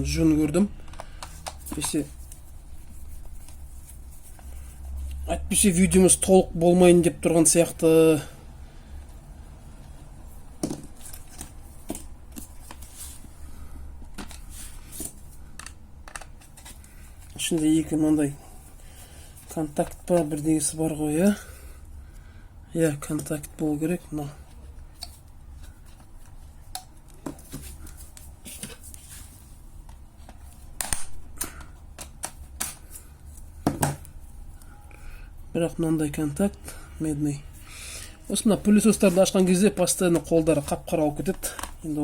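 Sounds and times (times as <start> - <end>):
clicks and knocks of parts handled: 0.8 - 2.4, 14.0 - 17.7, 29.8 - 34.2, 39.8 - 41.9.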